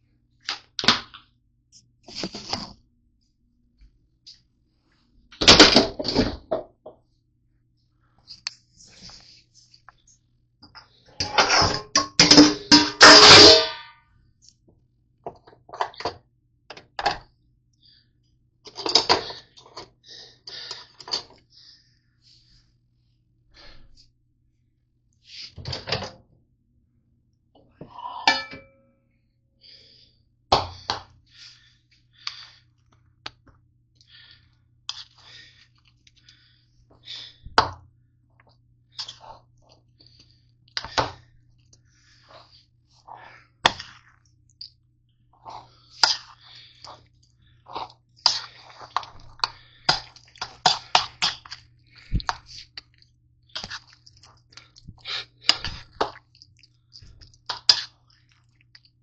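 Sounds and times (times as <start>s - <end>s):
kitchenware clattering: 11.2s - 13.9s.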